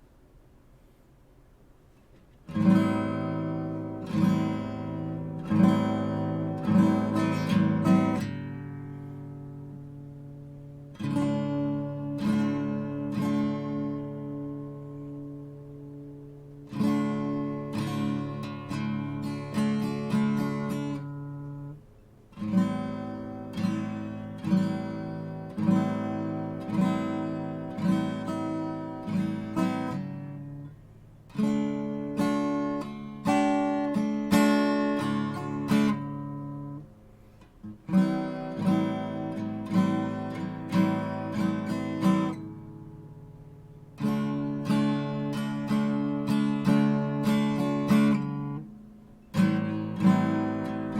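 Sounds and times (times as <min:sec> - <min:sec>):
acoustic guitar strummed chords: 0:01.7 - 0:50.9.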